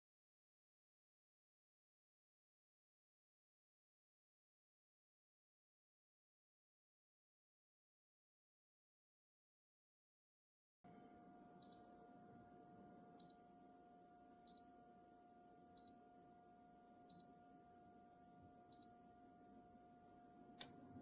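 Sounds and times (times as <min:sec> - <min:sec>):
low electrical hum: 0:10.9 - 0:21.0.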